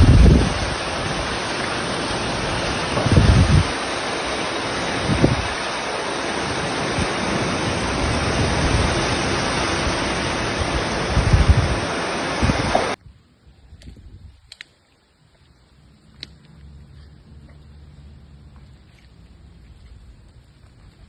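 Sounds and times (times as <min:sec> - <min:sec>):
heavy rain hissing: 0:00.0 - 0:13.5
wind gusts buffeting microphone: 0:00.0 - 0:14.5.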